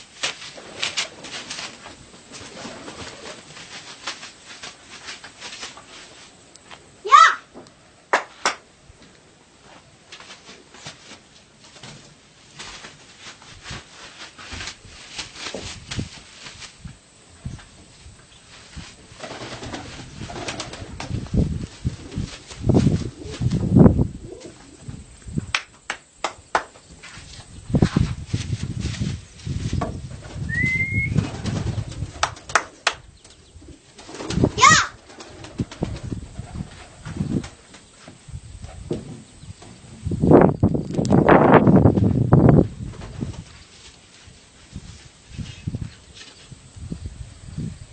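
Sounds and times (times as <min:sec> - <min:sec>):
pigeons cooing low: 0:24.2 - 0:25.0
pigeons clicking and knocking: 0:29.8 - 0:33.4.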